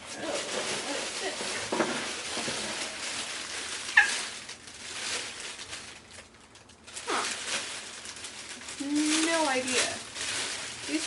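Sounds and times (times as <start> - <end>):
packaging rustling: 0.0 - 11.0
parrot calling: 3.9 - 4.2.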